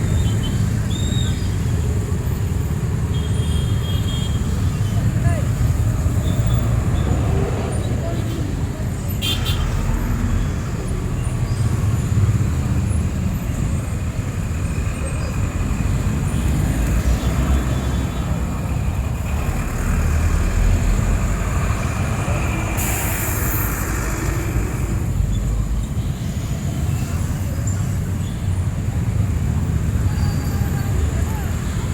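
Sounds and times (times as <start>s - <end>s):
vehicle engines running: 0.0s - 31.9s
tyres hissing on wet road: 19.3s - 28.2s.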